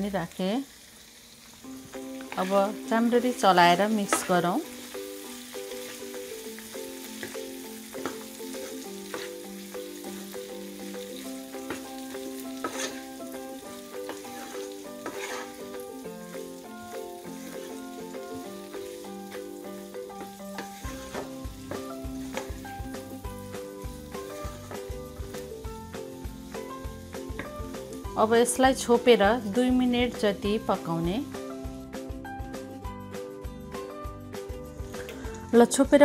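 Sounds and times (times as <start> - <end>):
chicken and onion sizzling: 0.0 - 33.3
soft background music: 1.4 - 36.0
wooden spatula scraping pan: 2.2 - 4.5, 8.0 - 9.4, 11.6 - 13.4, 14.0 - 15.8, 17.2 - 18.5, 20.2 - 22.6.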